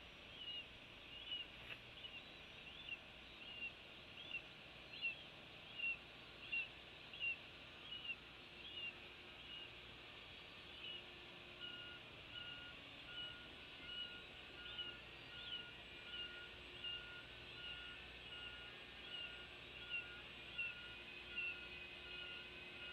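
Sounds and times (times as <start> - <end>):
bird chirping: 0.2 - 9.8, 10.6 - 22.9
vehicle reversing alarm beeping: 10.8 - 22.9.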